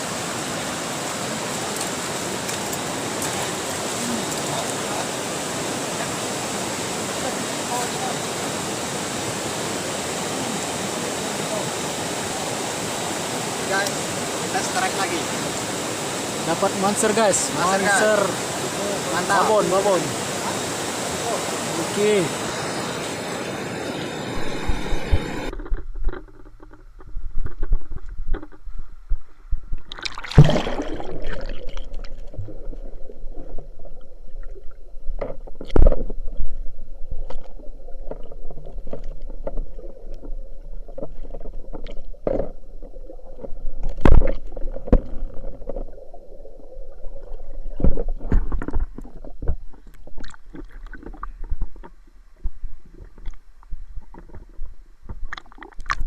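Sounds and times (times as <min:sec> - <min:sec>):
river current rushing: 0:00.0 - 0:25.7
underwater rumbling and gurgling: 0:23.5 - 0:56.0
sharp underwater knocks: 0:29.8 - 0:34.0, 0:37.2 - 0:45.9.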